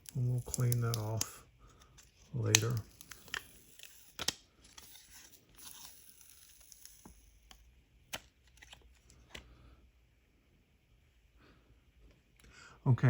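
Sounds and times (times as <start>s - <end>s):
plastic film peeling: 0.0s - 7.1s.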